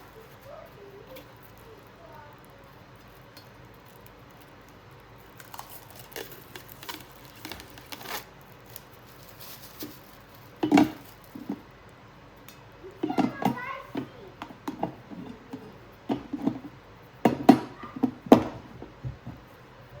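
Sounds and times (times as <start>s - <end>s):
packaging rustling: 0.0s - 11.7s.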